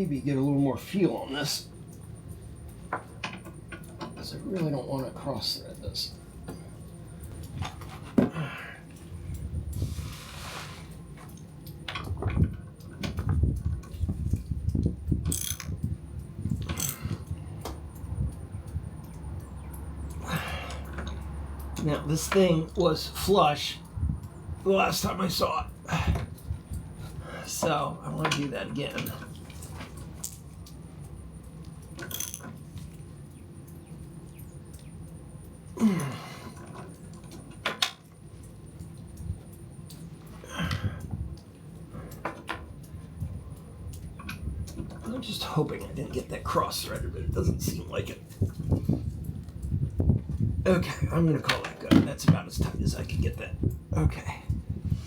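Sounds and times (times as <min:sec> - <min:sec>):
low steady hum: 0:00.0 - 0:55.0
small metallic clicks and clinks: 0:01.8 - 0:09.8, 0:10.9 - 0:22.8, 0:26.1 - 0:46.3
brief hiss: 0:09.8 - 0:10.9.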